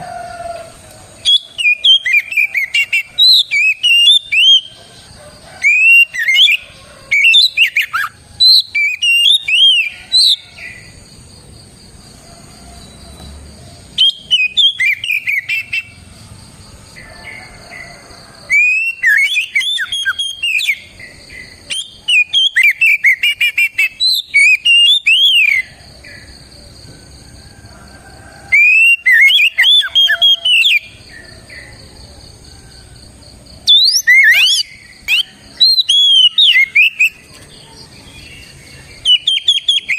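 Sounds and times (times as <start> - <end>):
bird singing rapid whistled notes: 1.2 - 4.7, 5.6 - 10.4, 13.9 - 16.0, 18.5 - 25.7, 28.6 - 31.0, 33.7 - 39.9.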